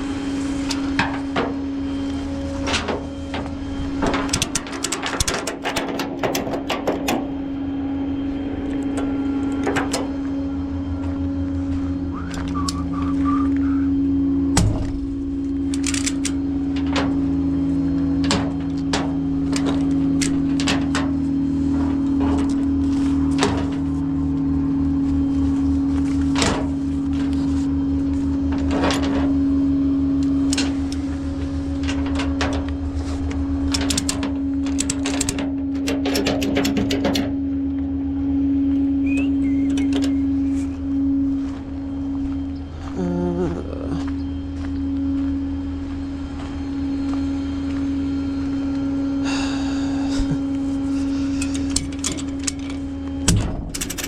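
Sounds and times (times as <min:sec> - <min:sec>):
vehicle engine droning: 0:00.0 - 0:54.0
short clicks and rattles: 0:04.1 - 0:07.2, 0:15.6 - 0:17.0, 0:33.7 - 0:37.4, 0:51.2 - 0:54.0.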